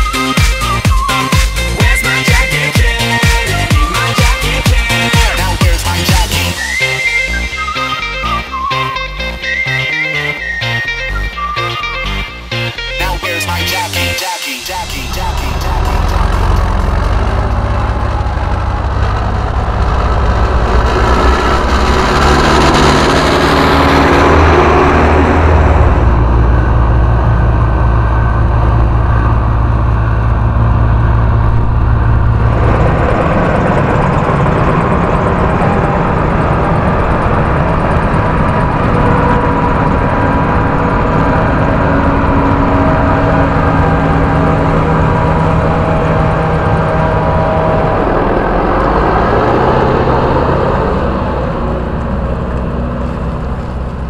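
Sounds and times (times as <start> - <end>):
harvest machinery engines droning: 0.0 - 54.0.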